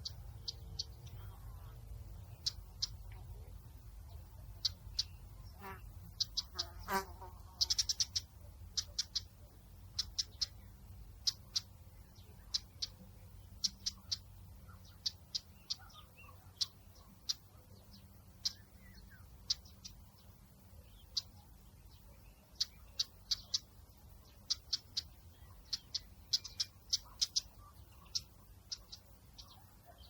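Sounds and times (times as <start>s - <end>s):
low outdoor rumble: 0.0s - 6.6s
small birds chirping: 0.0s - 30.0s.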